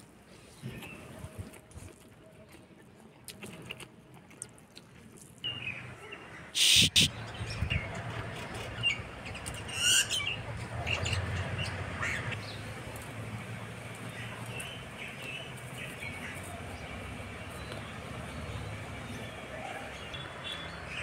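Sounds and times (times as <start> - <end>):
birds chirping and calling: 6.6 - 12.7.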